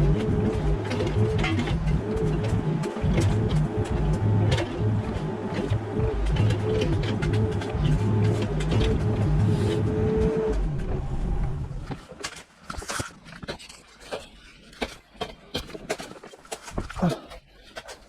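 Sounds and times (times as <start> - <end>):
excavator diesel engine running: 0.0 - 11.9
hydraulic whine: 0.0 - 12.1.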